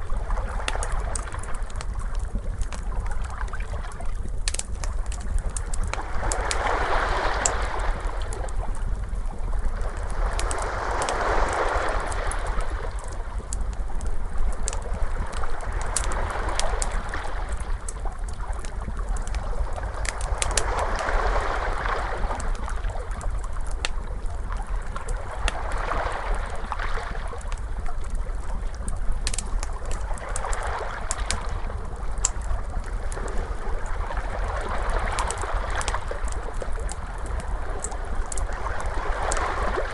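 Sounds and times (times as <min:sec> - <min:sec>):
wood fire crackling: 0:00.0 - 0:21.5, 0:22.2 - 0:39.9
ocean waves washing in: 0:05.9 - 0:17.9, 0:19.8 - 0:23.6, 0:30.0 - 0:39.9.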